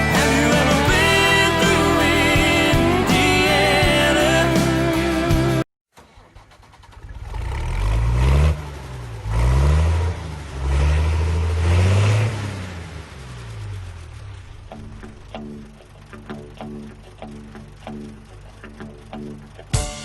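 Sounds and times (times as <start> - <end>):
vehicle engine accelerating: 7.0 - 19.7.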